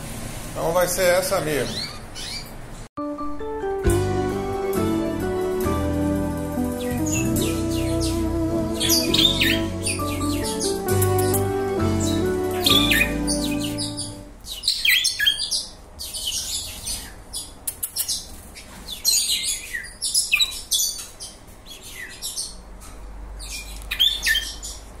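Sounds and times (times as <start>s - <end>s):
cage birds chirping: 0.7s - 2.9s, 4.0s - 25.0s
background music: 3.0s - 14.4s.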